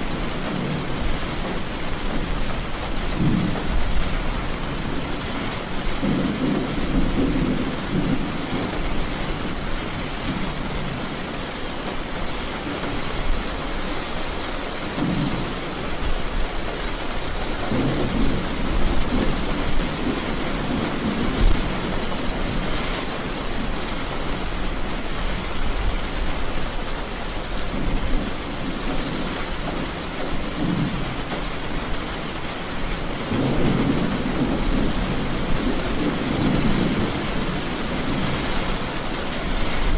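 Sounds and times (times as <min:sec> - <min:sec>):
steady rain: 0:00.0 - 0:39.9
thunder rolling: 0:03.0 - 0:05.0, 0:05.6 - 0:11.4, 0:17.5 - 0:24.5, 0:33.2 - 0:39.9.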